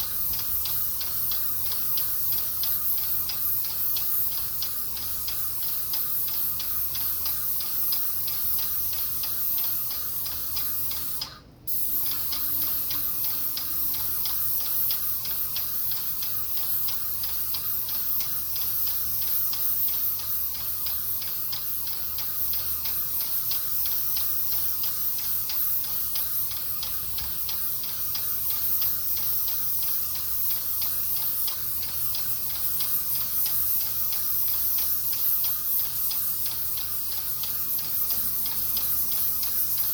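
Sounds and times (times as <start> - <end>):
paint sprayer hissing: 0.0 - 39.9
pump ticking and humming: 0.0 - 39.9.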